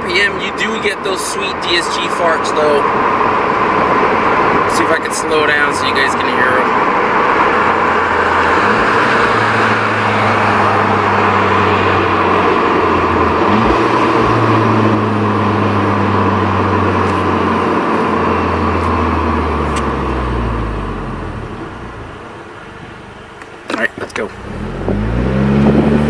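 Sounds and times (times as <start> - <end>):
road and wind noise: 0.0 - 26.0
car engine accelerating: 6.7 - 22.8, 24.2 - 26.0.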